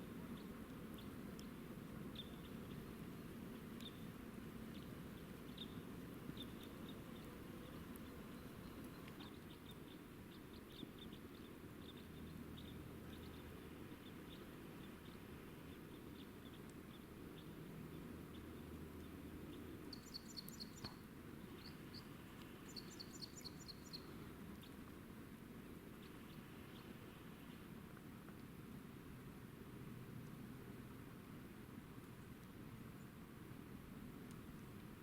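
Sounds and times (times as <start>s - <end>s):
light faint ticks: 0.3s - 25.0s, 25.9s - 28.6s, 30.2s - 31.1s, 31.9s - 35.0s
small bird calling: 4.7s - 17.6s, 19.0s - 24.8s.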